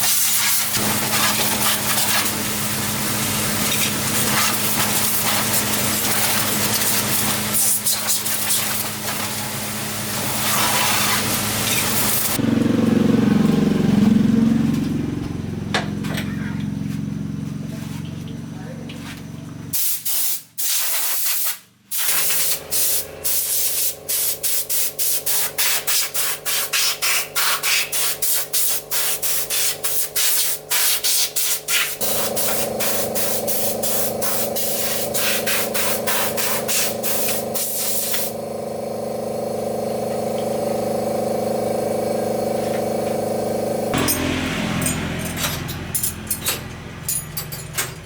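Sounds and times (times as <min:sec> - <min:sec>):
hissing spray bursts: 0:00.0 - 0:12.4, 0:19.7 - 0:38.8
machine hum: 0:32.0 - 0:48.0.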